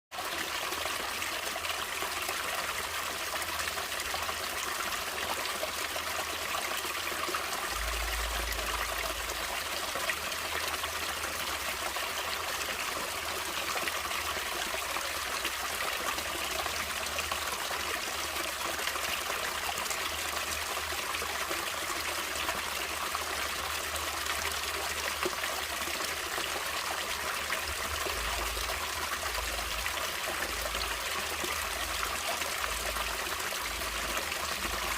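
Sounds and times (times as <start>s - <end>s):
stream trickling and splashing: 0.1s - 34.9s.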